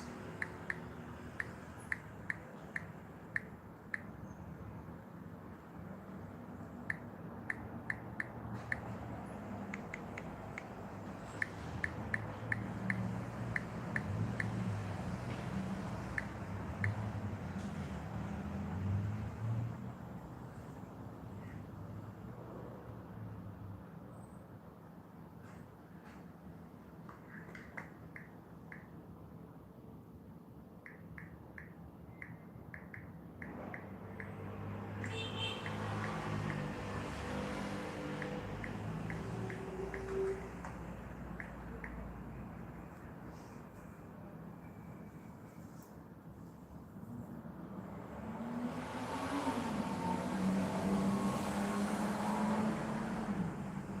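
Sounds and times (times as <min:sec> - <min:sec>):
soft clicks: 0:30.8 - 0:34.4, 0:38.2 - 0:42.2.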